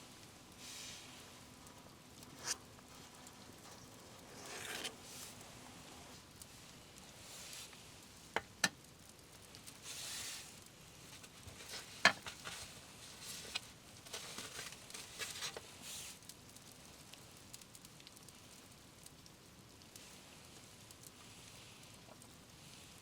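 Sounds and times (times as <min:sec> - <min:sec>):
light rain pattering: 0:00.0 - 0:23.0
handling rustles and knocks: 0:09.8 - 0:16.1.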